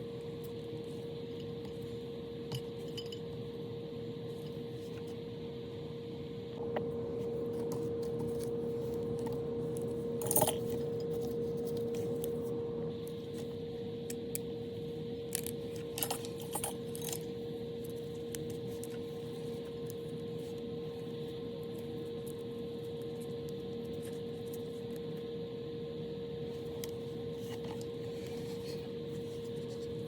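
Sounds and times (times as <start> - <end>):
steady hum: 0.0 - 30.0
small metal parts clinking: 10.2 - 10.9, 15.4 - 17.3.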